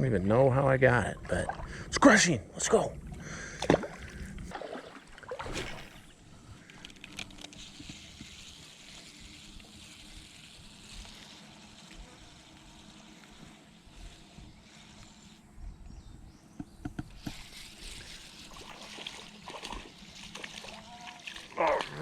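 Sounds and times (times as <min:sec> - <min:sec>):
creek water trickling: 0:00.5 - 0:11.9, 0:17.2 - 0:22.0
knocks and splashes: 0:03.6 - 0:06.1.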